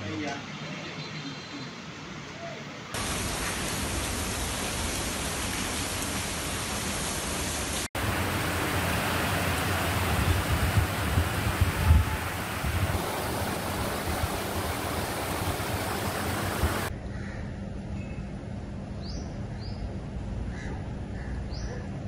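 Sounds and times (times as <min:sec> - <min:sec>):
birds chirping: 0:00.4 - 0:02.0
heavy rain hissing: 0:03.0 - 0:16.9.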